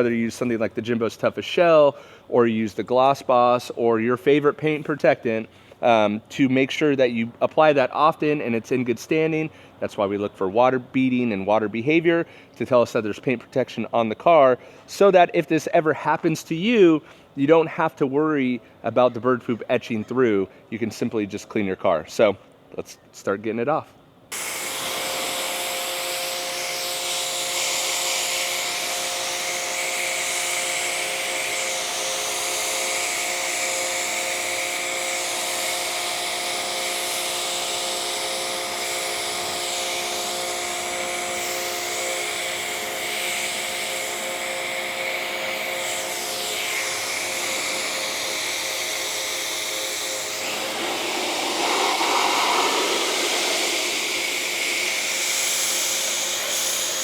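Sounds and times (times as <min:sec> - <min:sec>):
pressure washer motor hum: 0:47.5 - 0:57.0
water spray hissing: 0:50.1 - 0:57.0.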